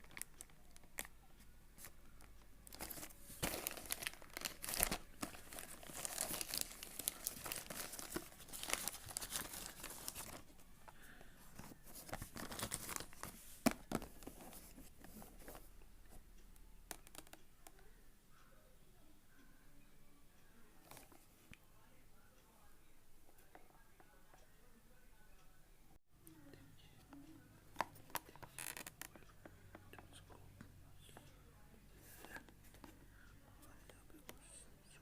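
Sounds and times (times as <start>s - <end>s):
packaging tearing and crinkling: 2.7s - 10.4s.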